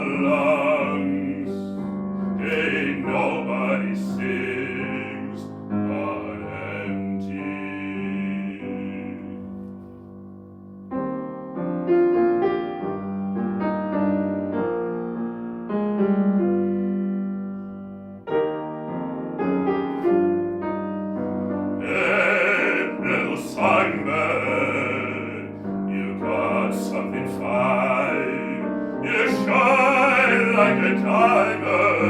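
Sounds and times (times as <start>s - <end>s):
man singing: 0.0s - 9.5s, 21.8s - 32.0s
solo piano: 0.0s - 32.0s.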